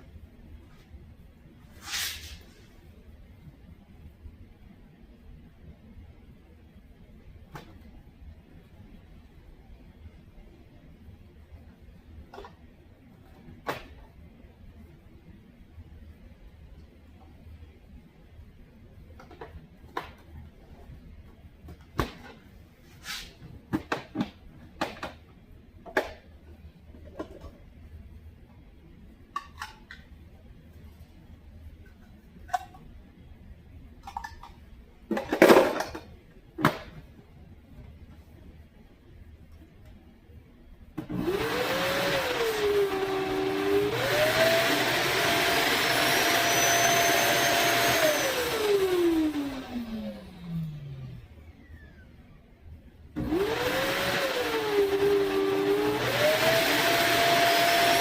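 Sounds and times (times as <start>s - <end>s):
plastic scrape: 1.8s - 2.6s
vacuum cleaner motor whining: 41.0s - 52.2s, 53.2s - 58.0s.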